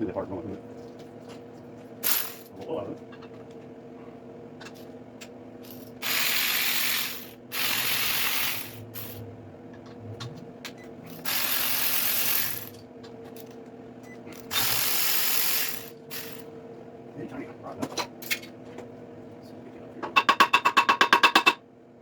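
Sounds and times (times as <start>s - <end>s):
steady low hum: 0.0s - 20.2s
air ratchet running: 2.0s - 2.5s, 5.6s - 9.2s, 11.1s - 12.8s, 14.4s - 16.5s.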